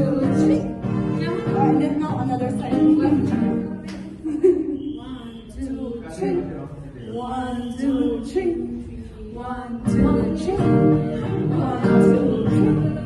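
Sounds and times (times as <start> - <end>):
guitar accompaniment: 0.0 - 4.2, 9.8 - 13.0.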